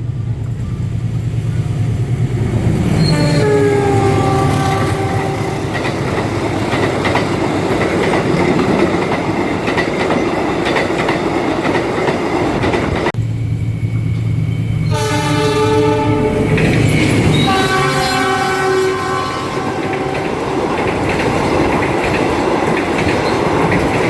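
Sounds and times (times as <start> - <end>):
train wheels clattering over rail joints: 1.8 - 13.2, 16.4 - 17.8, 19.0 - 24.0
locomotive horn: 2.8 - 6.0, 14.8 - 20.6.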